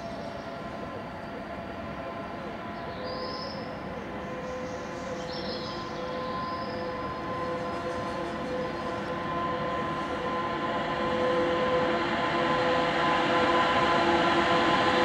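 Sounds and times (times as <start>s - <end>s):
freight train rumble: 0.0s - 15.0s.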